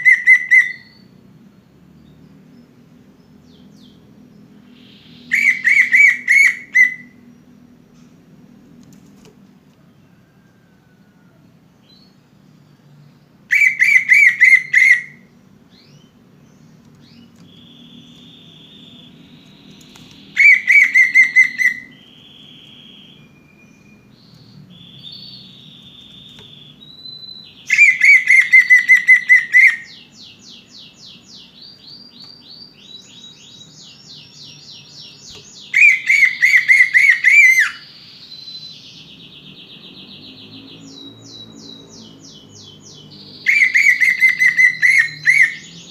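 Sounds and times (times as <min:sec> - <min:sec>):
soft bird chirps: 0:00.0 - 0:45.9
bird warbling trill: 0:04.8 - 0:07.2, 0:17.2 - 0:30.3, 0:35.3 - 0:38.6, 0:43.4 - 0:45.9.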